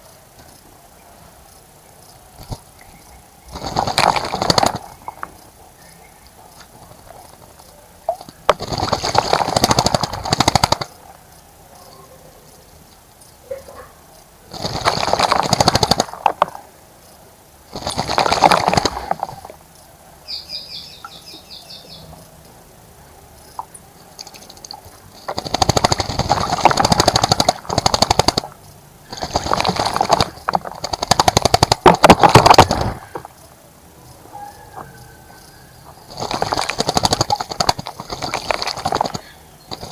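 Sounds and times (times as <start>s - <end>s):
bird splashing in water: 3.5s - 5.4s, 6.7s - 11.0s, 14.5s - 16.6s, 17.7s - 19.6s, 23.6s - 33.4s, 36.0s - 39.9s
bird high chirps: 20.2s - 22.2s.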